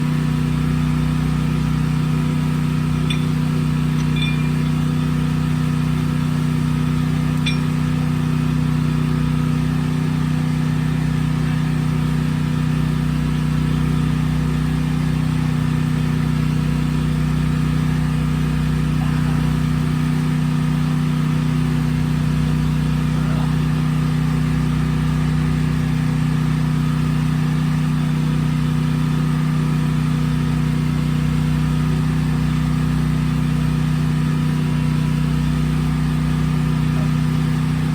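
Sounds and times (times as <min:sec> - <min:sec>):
engine drone with low hum: 0:00.0 - 0:37.9.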